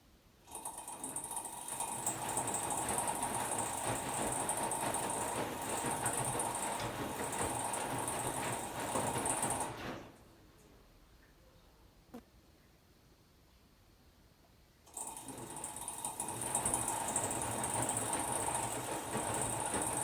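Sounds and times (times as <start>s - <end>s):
washing machine motor whine: 0.5s - 10.4s, 14.9s - 20.0s
wet laundry knocking in drum: 1.9s - 10.1s, 16.2s - 20.0s.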